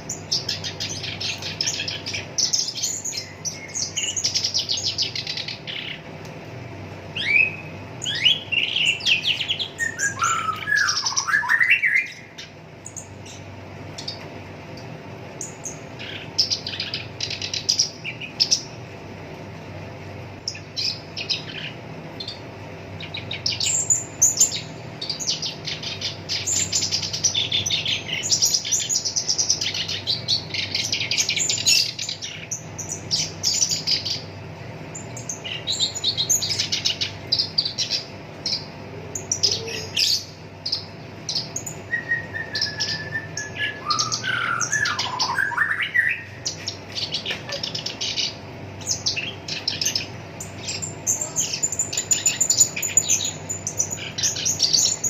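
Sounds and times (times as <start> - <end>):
faint steady hum: 0.0 - 55.0
warbler song: 0.0 - 55.0
whistled falling bird notes: 7.2 - 12.2, 41.8 - 46.6.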